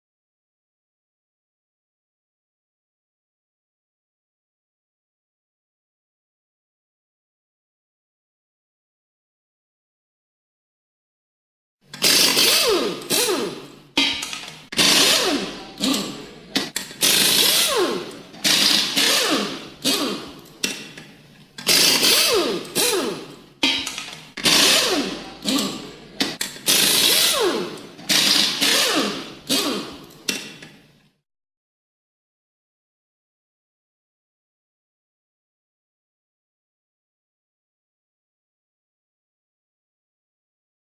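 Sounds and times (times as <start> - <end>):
power tool short bursts: 12.0 - 16.2, 17.0 - 20.4, 21.6 - 25.8, 26.6 - 30.1.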